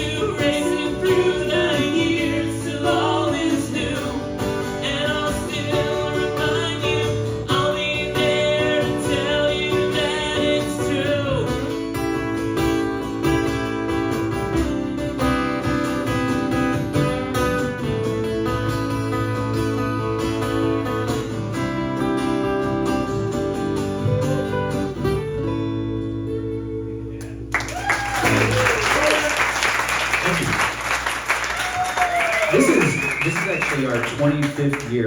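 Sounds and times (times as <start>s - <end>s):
person singing: 0.0s - 11.7s
acoustic guitar playing: 0.0s - 27.6s.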